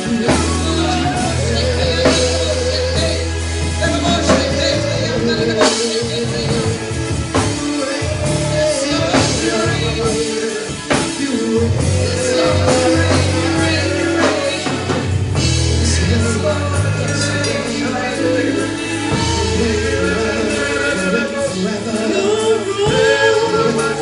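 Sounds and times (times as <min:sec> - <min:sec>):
drum kit: 0:00.0 - 0:24.0
people singing: 0:00.0 - 0:24.0
worship band playing: 0:00.0 - 0:24.0.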